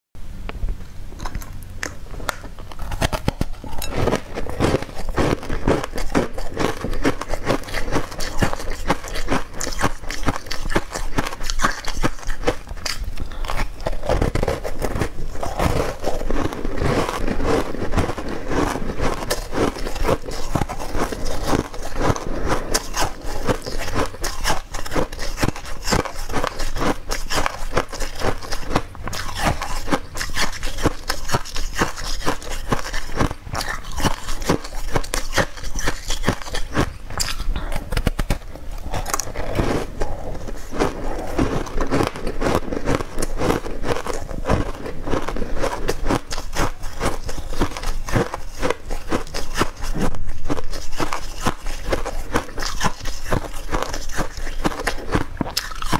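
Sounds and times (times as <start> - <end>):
close chewing and mouth sounds: 1.2 - 55.9.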